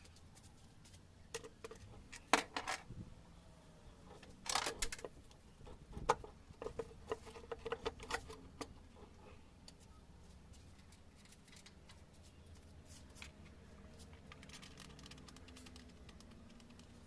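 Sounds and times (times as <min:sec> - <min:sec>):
tools and small parts clicking: 0:04.1 - 0:08.8, 0:10.7 - 0:12.0.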